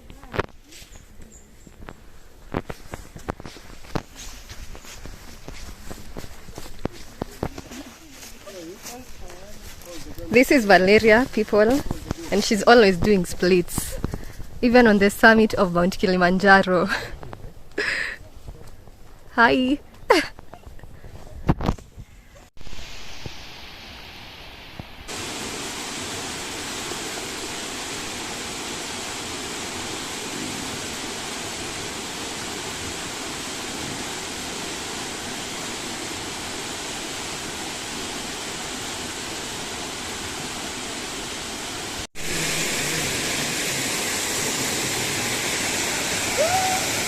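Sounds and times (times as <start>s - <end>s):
waterfall rushing: 22.6s - 47.0s.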